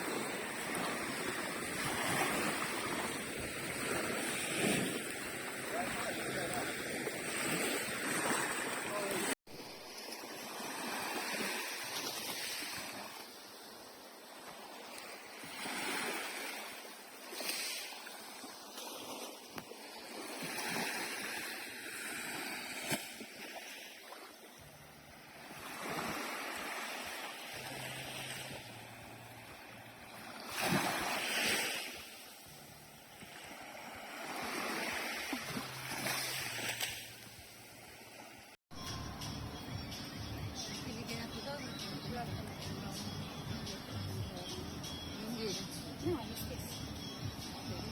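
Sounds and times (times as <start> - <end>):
sea waves washing onto shore: 0.0 - 24.6, 25.3 - 38.5.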